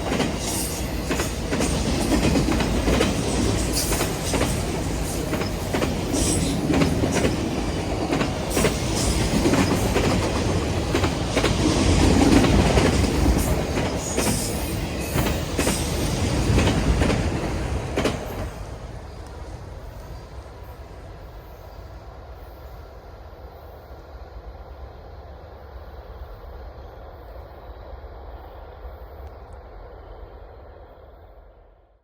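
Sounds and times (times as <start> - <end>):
wheels clicking over rail joints: 0.0 - 20.3
freight train cars rolling past: 0.0 - 23.8.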